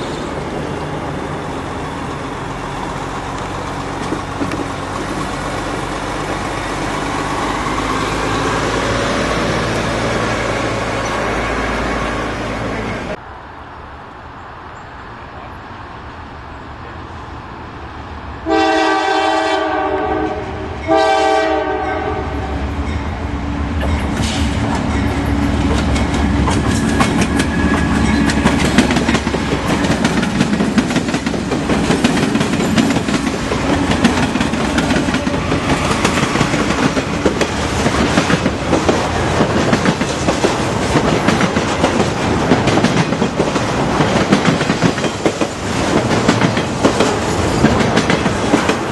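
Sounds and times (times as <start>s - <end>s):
locomotive engine rumble: 0.0s - 13.2s
wheels clattering over rail joints: 1.6s - 8.5s, 23.8s - 48.9s
train horn blasts: 18.4s - 22.8s.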